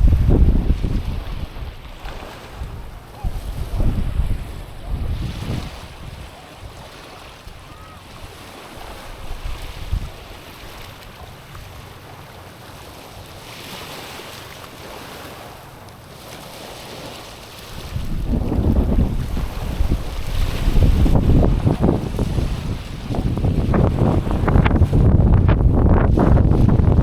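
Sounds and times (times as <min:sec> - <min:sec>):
wind buffeting microphone: 0:00.0 - 0:06.9, 0:07.5 - 0:12.0, 0:17.7 - 0:27.0
small waves on pebbly shore: 0:00.0 - 0:25.1.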